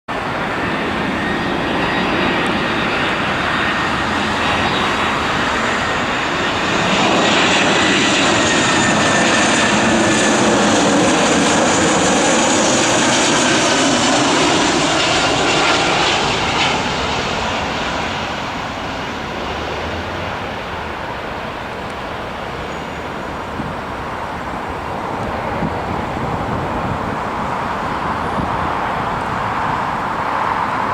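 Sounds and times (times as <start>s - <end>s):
jet airliner landing: 0.1s - 30.9s.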